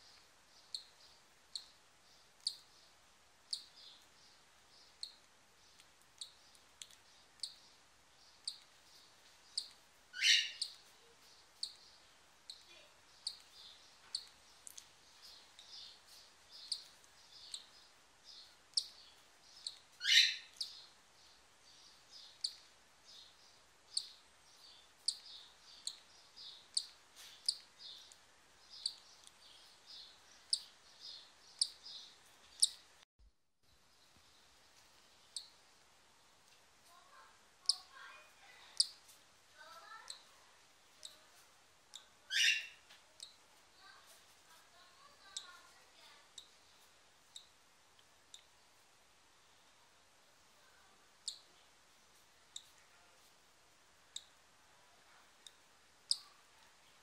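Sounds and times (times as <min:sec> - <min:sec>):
birds chirping: 0:00.0 - 0:33.0, 0:36.9 - 0:47.6, 0:55.4 - 0:56.4.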